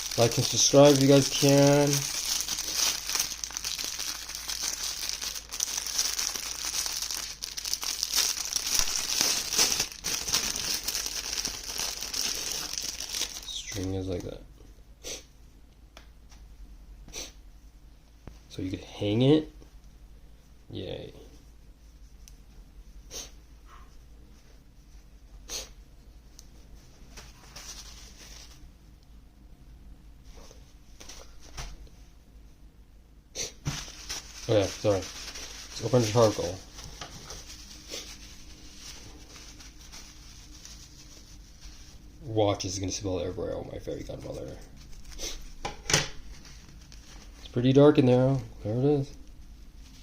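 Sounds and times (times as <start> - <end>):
packaging crinkling and rustling: 0.0 - 13.8, 27.2 - 28.6, 33.6 - 42.1, 43.9 - 47.8
soft rustle: 20.3 - 28.7, 33.7 - 42.9, 46.2 - 50.0.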